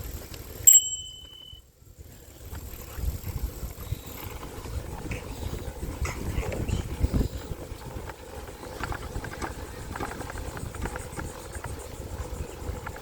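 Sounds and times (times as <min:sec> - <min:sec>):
bicycle rolling rumble: 0:00.0 - 0:13.0
sharp click with high ring: 0:00.7 - 0:01.6
wind buffeting microphone: 0:01.9 - 0:13.0.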